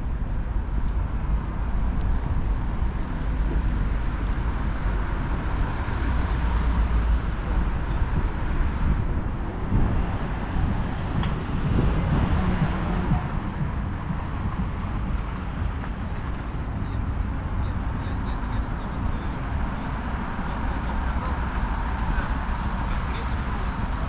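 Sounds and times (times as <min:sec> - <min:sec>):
wind buffeting microphone: 0:00.0 - 0:17.8
traffic noise: 0:00.0 - 0:24.0.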